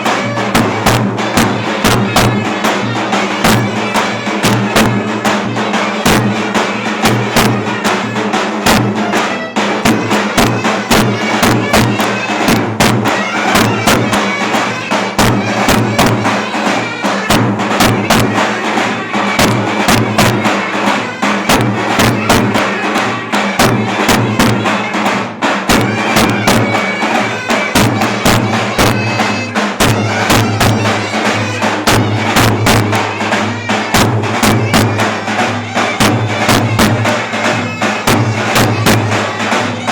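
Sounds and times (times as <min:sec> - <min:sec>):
drum strokes: 0:00.0 - 0:39.9
clarinet melody: 0:25.9 - 0:39.9.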